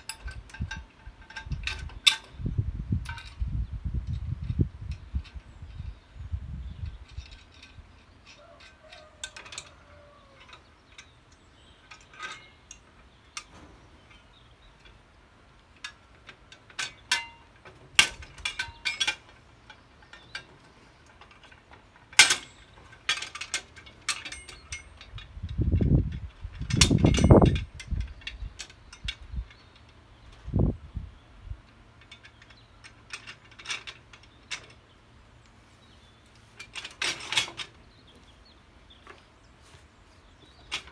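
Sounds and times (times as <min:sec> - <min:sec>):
metal tools clinking: 0:00.0 - 0:02.4, 0:06.8 - 0:15.0, 0:15.7 - 0:30.3, 0:31.7 - 0:38.0.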